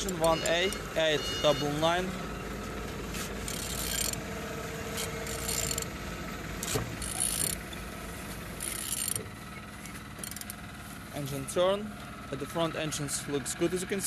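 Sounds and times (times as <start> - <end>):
engine internals turning: 0.0 - 14.0
ratchet clicking: 3.4 - 4.3, 4.9 - 5.9, 6.6 - 7.8, 8.5 - 10.6.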